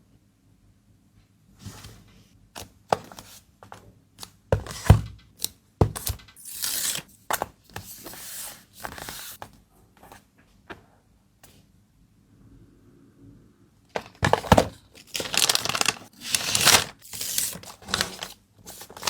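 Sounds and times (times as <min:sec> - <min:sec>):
packaging thump: 0:14.0 - 0:17.0
packaging tearing and rustling: 0:14.2 - 0:19.0.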